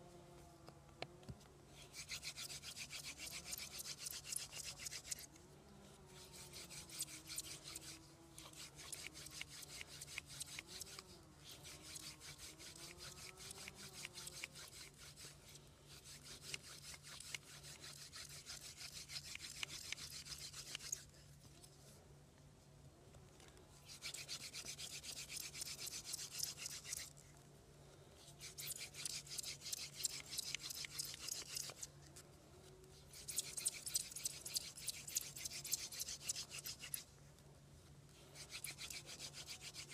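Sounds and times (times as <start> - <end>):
wooden drill rubbing on wood: 1.8 - 5.4, 6.1 - 21.1, 23.9 - 27.2, 28.2 - 31.9, 33.0 - 37.1, 38.3 - 39.9.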